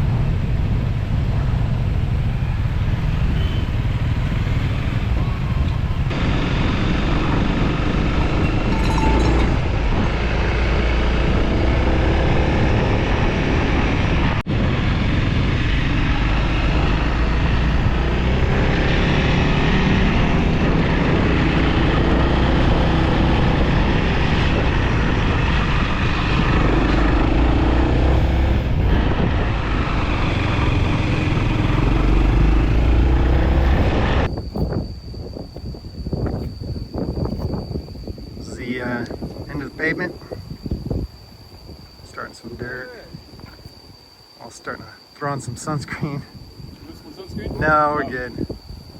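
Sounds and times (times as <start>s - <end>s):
riding wind noise: 0.0s - 48.9s.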